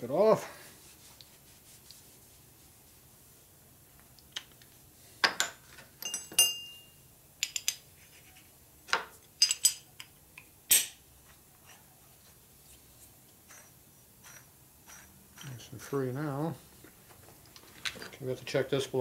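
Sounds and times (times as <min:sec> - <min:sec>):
metal parts clinking on workbench: 0:05.2 - 0:07.8, 0:08.9 - 0:09.9.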